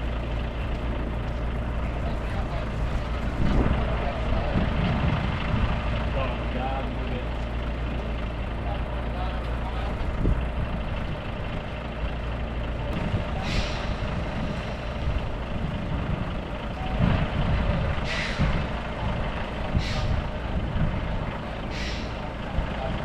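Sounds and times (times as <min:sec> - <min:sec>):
truck engine running: 0:00.0 - 0:23.0
air hissing: 0:13.4 - 0:15.0, 0:18.1 - 0:18.6, 0:19.7 - 0:20.4, 0:21.6 - 0:22.3.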